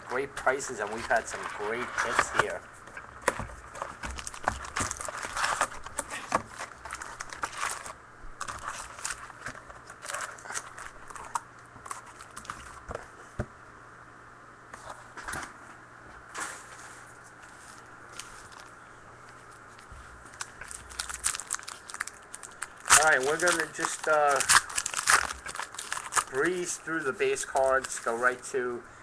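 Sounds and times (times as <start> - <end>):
card pack wrappers crinkling: 0.1 - 2.6, 3.7 - 12.8, 17.7 - 28.6
cards being handled: 0.1 - 2.6, 17.5 - 28.5.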